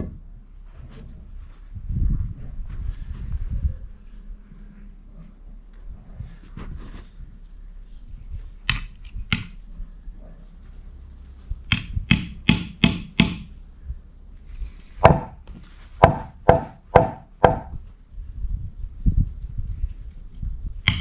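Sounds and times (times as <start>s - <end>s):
sharp blows on wood: 8.7s - 9.6s, 11.7s - 13.6s, 15.0s - 15.4s, 16.0s - 17.8s.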